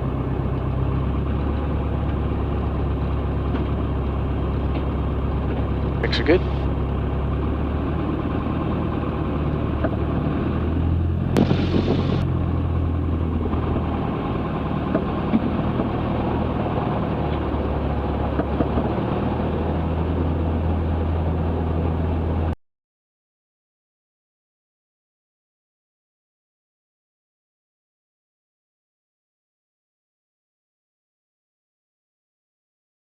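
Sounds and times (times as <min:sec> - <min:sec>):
aircraft engine droning: 0:00.0 - 0:22.6.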